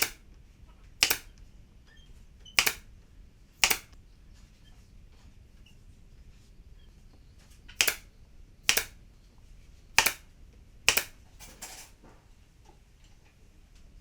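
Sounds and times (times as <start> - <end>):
sharp clicks: 0.0 - 0.2, 1.0 - 1.4, 2.6 - 2.9, 3.6 - 4.0, 7.8 - 8.1, 8.7 - 9.0, 10.0 - 10.3, 10.9 - 11.2.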